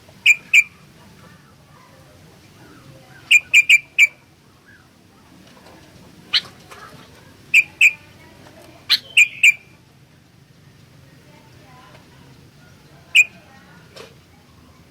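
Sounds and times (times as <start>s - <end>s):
bird whistled calls: 0.2s - 0.8s, 3.2s - 4.8s, 7.5s - 8.0s, 8.9s - 9.8s, 13.2s - 13.4s.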